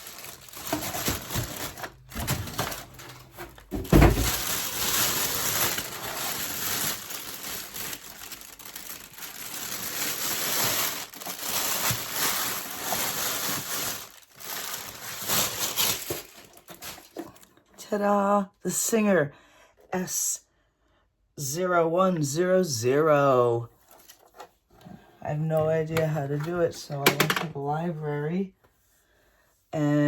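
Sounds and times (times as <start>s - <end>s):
packaging rustling and crunching: 0.0s - 17.6s.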